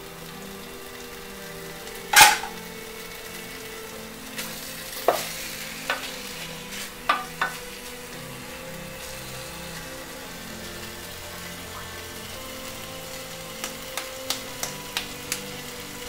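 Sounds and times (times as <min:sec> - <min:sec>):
sizzling hiss: 0:00.0 - 0:16.0
spatula knocking and scraping pot: 0:07.0 - 0:07.6.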